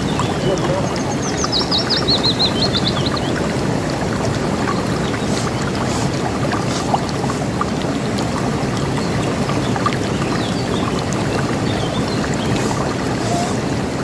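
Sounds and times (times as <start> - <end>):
high bird chirps: 0.0 - 3.4
river water rushing: 0.0 - 14.0.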